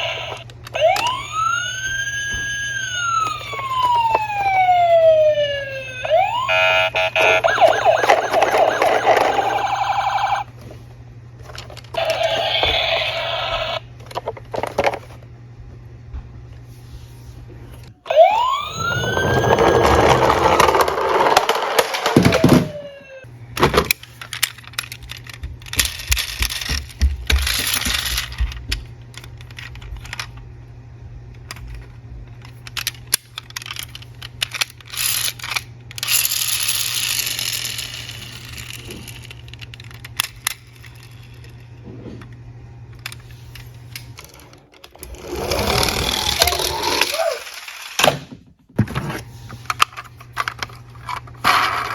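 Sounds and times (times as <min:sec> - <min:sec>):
siren wailing: 0:00.0 - 0:10.5, 0:12.0 - 0:13.8, 0:18.0 - 0:23.3, 0:45.1 - 0:47.6
toy cars rolling and clattering: 0:06.6 - 0:10.5, 0:11.4 - 0:15.2, 0:18.1 - 0:23.0, 0:23.6 - 0:30.4, 0:31.4 - 0:41.6, 0:43.0 - 0:48.3, 0:49.6 - 0:51.9.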